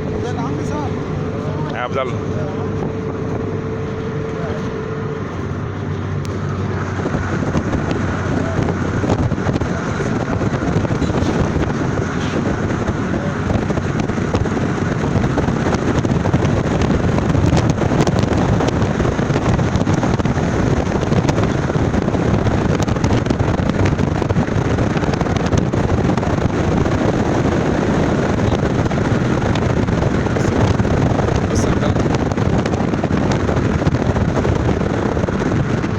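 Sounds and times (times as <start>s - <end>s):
moving vehicle running noise: 0.0s - 35.9s
wind rushing over microphone: 0.0s - 35.9s.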